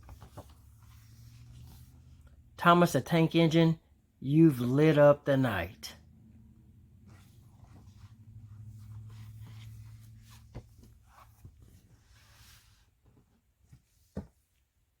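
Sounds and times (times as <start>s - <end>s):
soft rustling: 0.0s - 2.4s, 6.9s - 14.8s.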